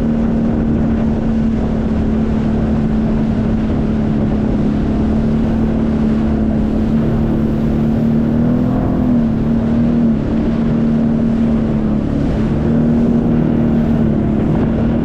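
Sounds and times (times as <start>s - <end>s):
jet ski engine humming: 0.0s - 15.0s
rushing noise: 4.6s - 10.0s, 11.7s - 15.0s.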